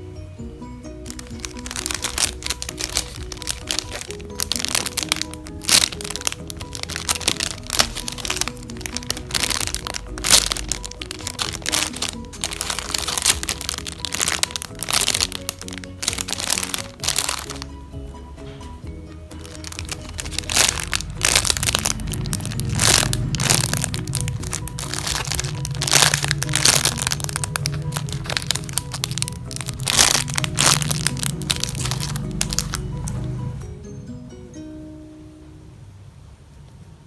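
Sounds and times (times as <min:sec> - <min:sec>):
background music: 0:00.0 - 0:35.8
foam toys crinkling: 0:01.0 - 0:17.8, 0:19.3 - 0:33.3.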